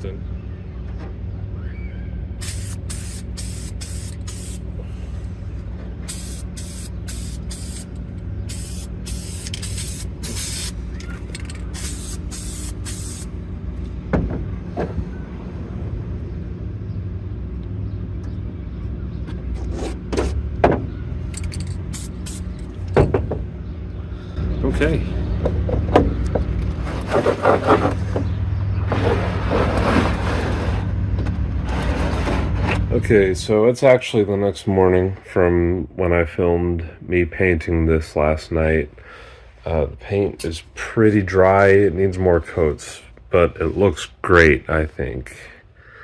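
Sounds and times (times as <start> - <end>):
steady low hum: 0.0 - 34.9
spray paint can hissing: 2.4 - 4.6, 6.1 - 13.3, 21.9 - 22.6.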